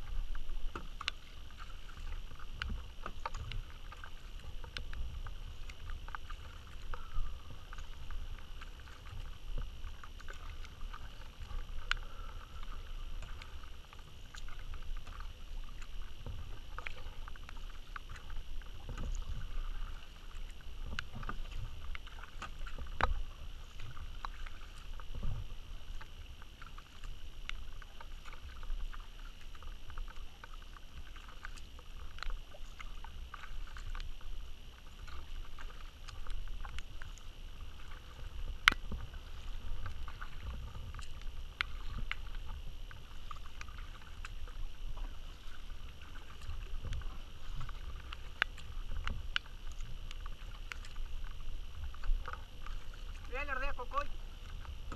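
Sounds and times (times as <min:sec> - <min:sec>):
paddle strokes splashing water: 0:00.0 - 0:54.9.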